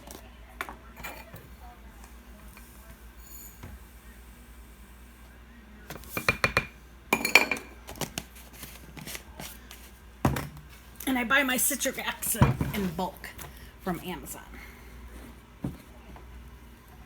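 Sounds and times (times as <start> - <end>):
measuring cups clinking: 6.0 - 8.0.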